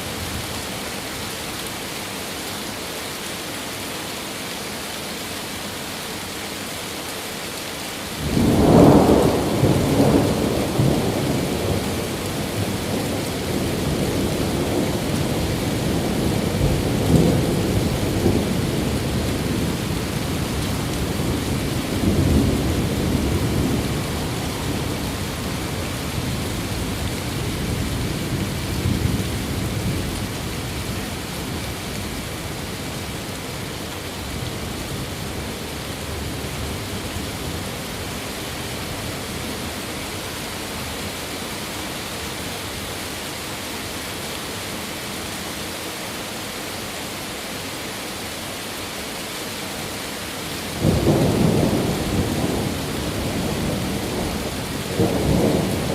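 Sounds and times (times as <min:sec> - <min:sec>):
steady rain: 0:00.0 - 0:55.9
thunder rumbling: 0:08.2 - 0:30.8, 0:50.8 - 0:55.9.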